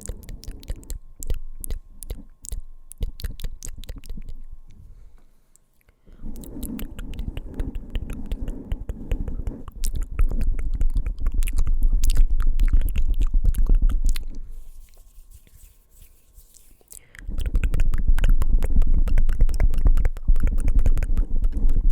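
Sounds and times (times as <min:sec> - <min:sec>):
fingers tapping on a microphone: 0:17.4 - 0:21.9.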